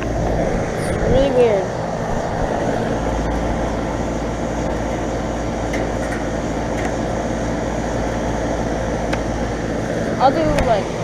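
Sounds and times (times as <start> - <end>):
condenser fan air rush: 0.0 - 11.0
low steady hum: 0.0 - 11.0.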